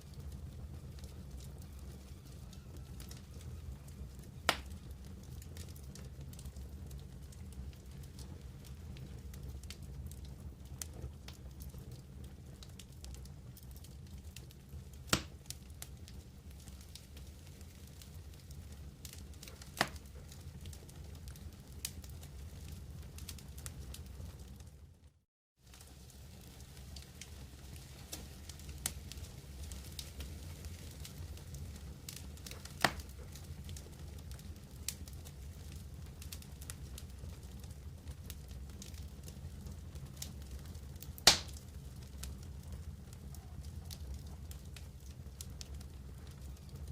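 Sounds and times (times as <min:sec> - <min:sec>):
campfire flames rumbling: 0:00.0 - 0:25.0, 0:25.6 - 0:46.9
fire crackling: 0:00.0 - 0:46.9
loud fire pop: 0:04.5 - 0:04.7, 0:15.1 - 0:15.4, 0:19.8 - 0:20.0, 0:32.8 - 0:33.1, 0:41.2 - 0:41.6
loud sharp pop: 0:15.1 - 0:15.3, 0:32.8 - 0:33.0, 0:41.3 - 0:41.6.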